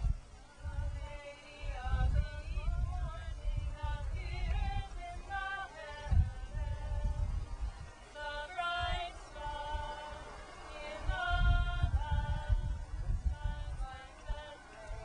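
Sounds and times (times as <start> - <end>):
voices singing held notes: 0.0 - 15.0.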